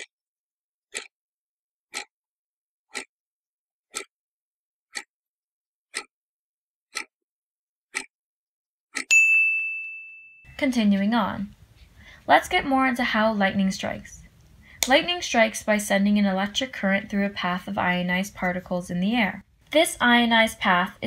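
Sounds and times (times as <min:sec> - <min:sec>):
clock ticking: 0:00.9 - 0:01.1, 0:01.9 - 0:02.1, 0:02.9 - 0:03.1, 0:03.9 - 0:04.1, 0:04.9 - 0:05.1, 0:05.9 - 0:06.1, 0:06.9 - 0:07.1, 0:07.9 - 0:08.1
bright ding: 0:09.1 - 0:10.6.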